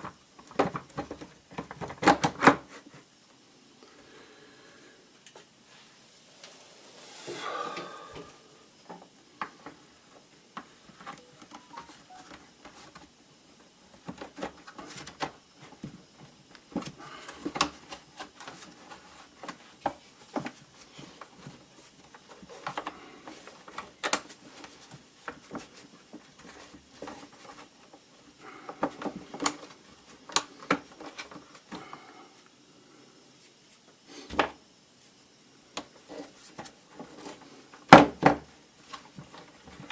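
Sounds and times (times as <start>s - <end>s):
plastic parts clicking and knocking: 0.0s - 2.7s, 21.2s - 27.6s.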